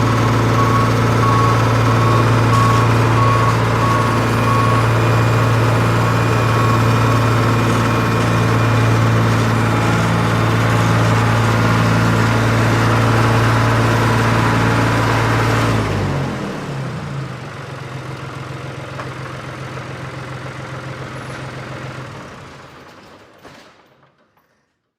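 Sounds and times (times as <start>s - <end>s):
engine hum: 0.0s - 22.8s.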